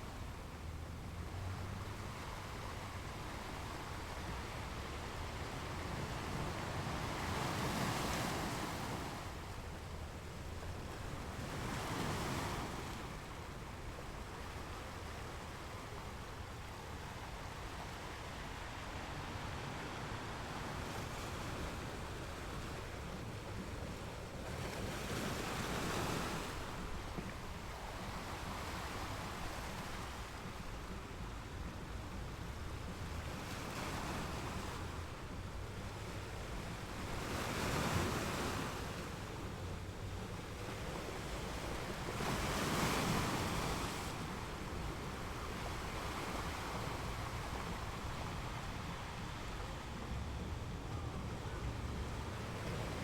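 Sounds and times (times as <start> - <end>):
ocean waves breaking: 36.2 - 53.0.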